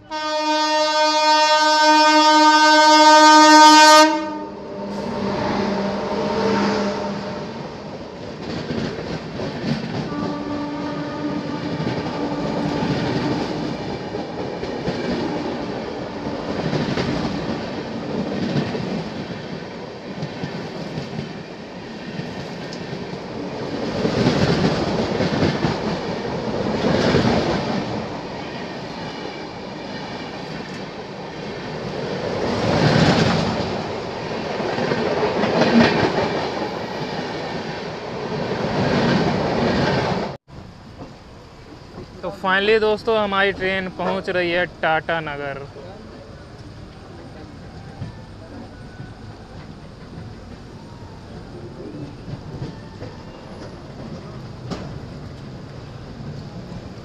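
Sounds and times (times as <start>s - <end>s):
train horn: 0.0s - 7.7s, 10.0s - 13.5s
passenger train passing by: 0.0s - 57.0s.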